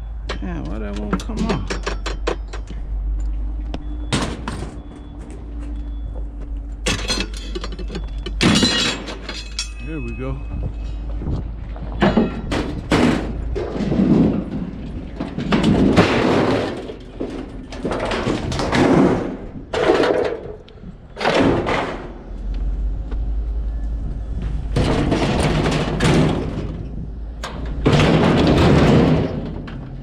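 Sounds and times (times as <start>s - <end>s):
low hum: 0.0s - 30.0s
scrap metal knocking and scraping: 6.8s - 10.0s, 10.6s - 22.4s, 24.4s - 30.0s.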